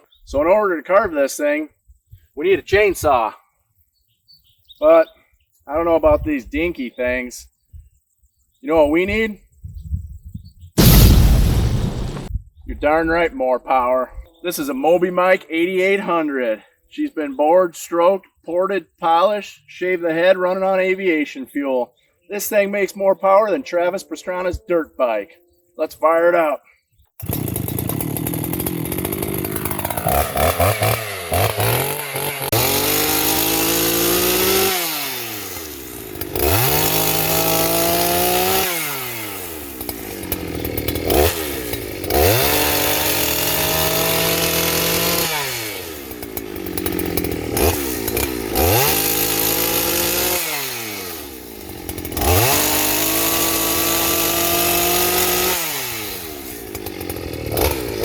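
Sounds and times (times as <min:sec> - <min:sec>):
chainsaw revving: 0:10.8 - 0:12.3, 0:27.2 - 0:58.0.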